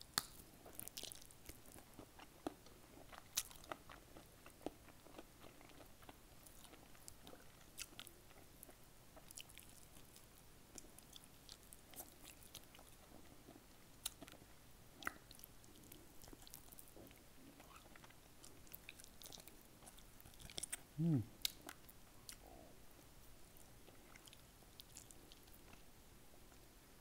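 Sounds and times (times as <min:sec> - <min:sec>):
chewing fried chicken: 0:00.0 - 0:26.6.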